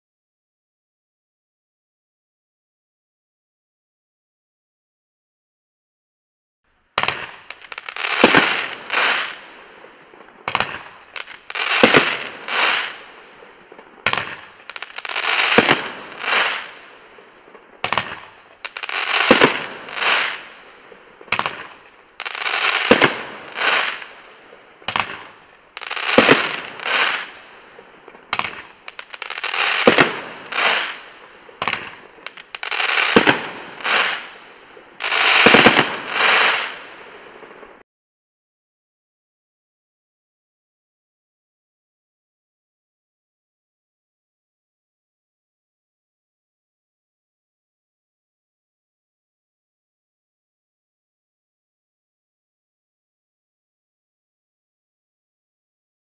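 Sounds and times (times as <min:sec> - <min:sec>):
firework bursts hissing and crackling: 0:07.0 - 0:37.8
firework launch thumps: 0:21.3 - 0:21.8, 0:24.9 - 0:25.4, 0:31.6 - 0:34.2.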